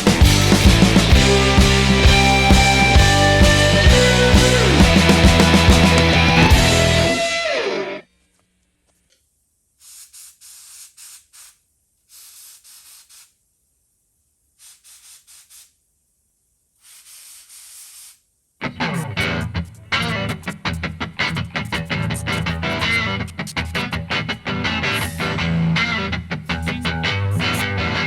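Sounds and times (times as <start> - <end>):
rock music with electric guitar: 0.0 - 8.0, 18.6 - 28.0
airbrush hissing sprays: 9.8 - 13.4, 14.6 - 15.8, 16.8 - 18.2.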